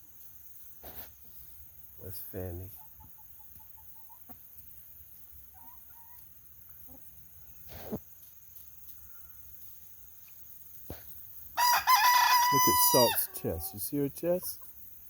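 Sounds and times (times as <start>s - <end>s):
hens clucking: 2.4s - 8.2s, 12.3s - 14.9s.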